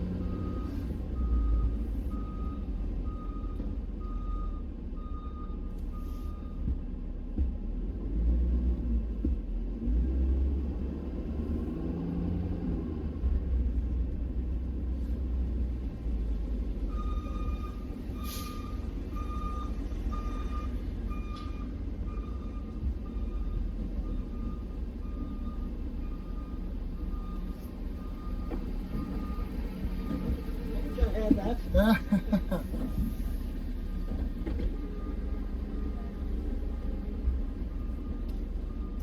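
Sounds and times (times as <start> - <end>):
vehicle engine rumble: 0.0 - 39.0
backup alarm beeping: 16.9 - 31.7.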